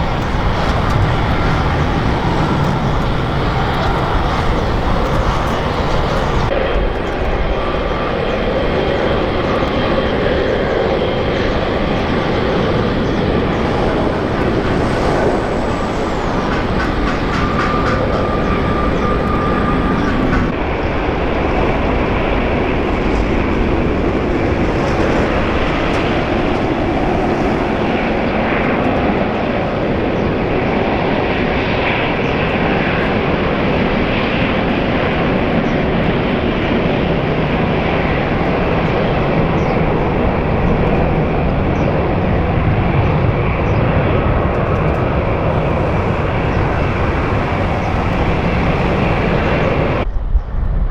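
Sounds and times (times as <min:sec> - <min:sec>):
high thin engine whine: 0:00.0 - 0:06.5, 0:08.2 - 0:20.5, 0:37.9 - 0:50.0
jet engines roaring: 0:00.0 - 0:50.1.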